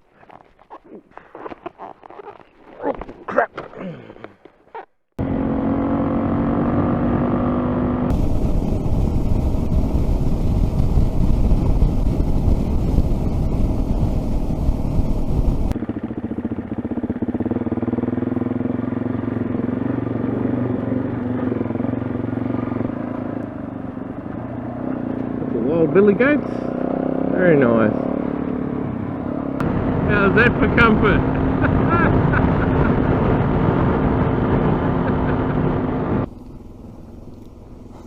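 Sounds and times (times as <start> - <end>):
motorcycle engine running: 5.2 - 38.0
wind rush: 8.1 - 15.8.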